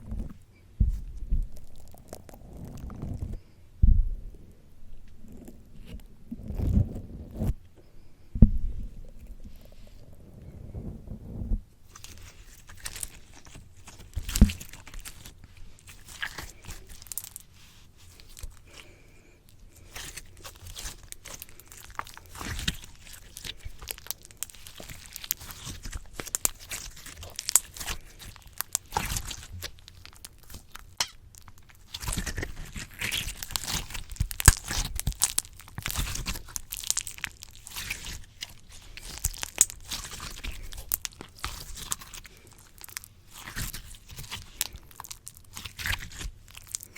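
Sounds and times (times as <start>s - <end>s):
slime squelching: 0.0s - 3.5s, 11.8s - 46.9s
thump on microphone: 0.8s - 1.5s, 3.8s - 4.2s, 8.4s - 8.8s.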